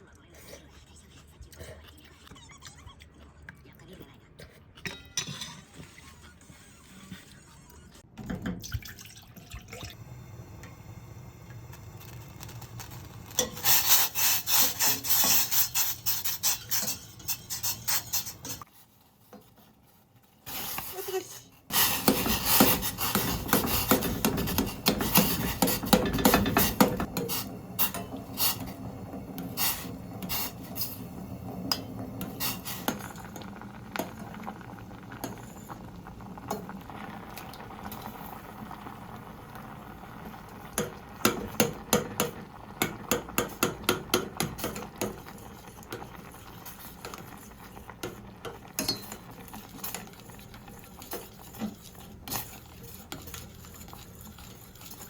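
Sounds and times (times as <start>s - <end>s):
utensils clinking against dishes: 4.8s - 6.0s, 48.1s - 50.1s.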